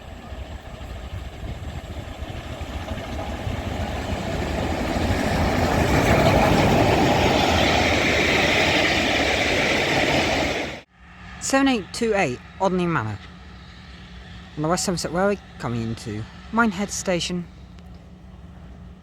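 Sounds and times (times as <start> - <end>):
train wheels rumbling on rails: 0.0 - 10.9.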